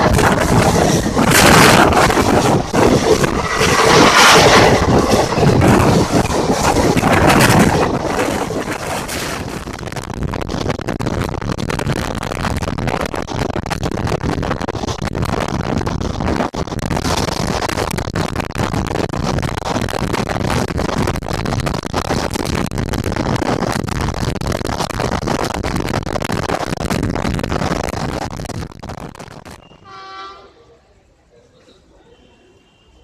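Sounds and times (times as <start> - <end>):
train passing at speed: 0.0 - 9.8
train horn blast: 29.7 - 30.8.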